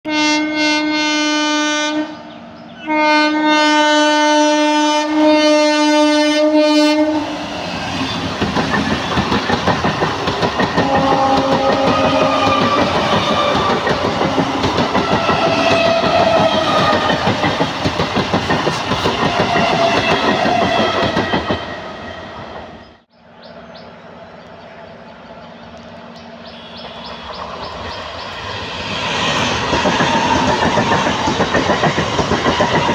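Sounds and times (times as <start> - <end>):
train horn blasts: 0.0 - 7.6, 10.8 - 17.4, 26.5 - 27.3
train wheels clattering on rails: 7.7 - 22.8, 26.6 - 32.9.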